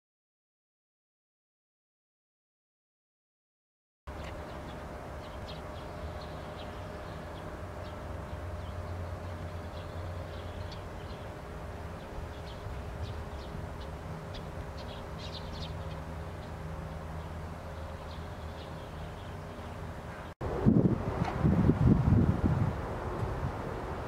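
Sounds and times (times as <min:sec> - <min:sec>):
small birds chirping: 0:04.1 - 0:20.4
steady low rumble: 0:04.1 - 0:24.0.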